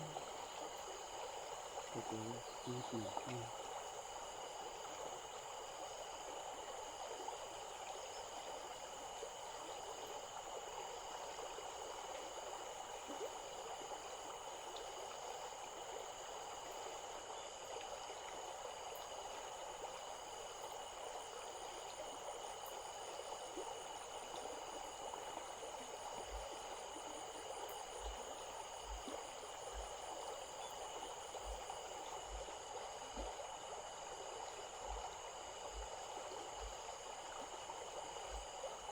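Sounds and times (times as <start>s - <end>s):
faint pulsing chirp: 0.0s - 3.8s, 21.8s - 32.5s
stream water rushing: 0.0s - 38.9s.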